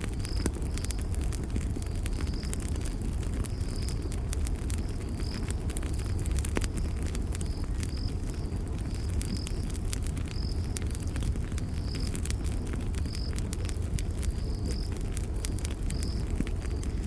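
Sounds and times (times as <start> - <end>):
campfire crackling: 0.0 - 17.0
crickets chirping: 4.7 - 17.0.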